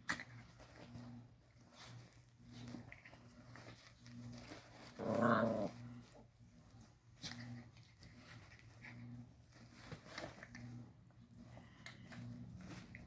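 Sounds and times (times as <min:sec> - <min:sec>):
dog growling: 0:04.8 - 0:06.2.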